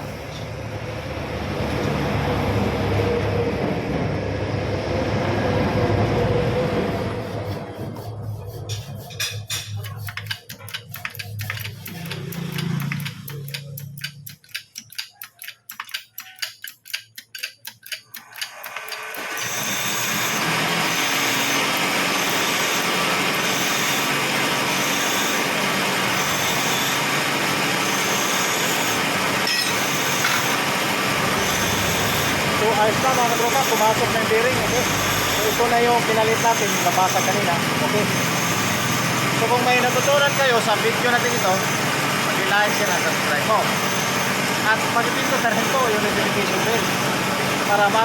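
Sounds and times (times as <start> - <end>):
loud steady machine noise: 0.0 - 15.5, 16.1 - 48.0
rapid tapping on metal hub: 7.9 - 19.2.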